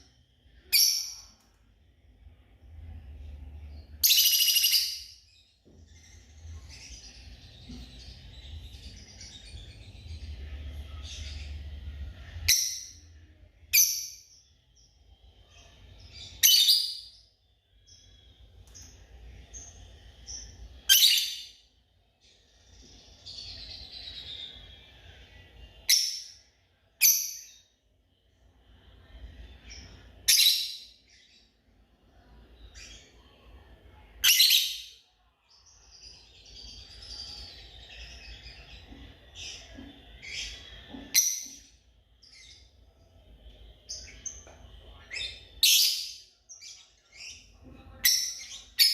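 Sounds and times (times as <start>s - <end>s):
lovebirds chattering and chirping: 2.8s - 27.8s, 35.6s - 48.9s.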